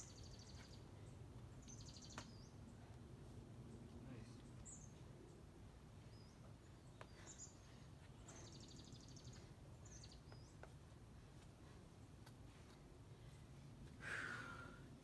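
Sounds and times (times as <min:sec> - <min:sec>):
faint bird chirps: 0:00.0 - 0:03.0, 0:06.0 - 0:10.8.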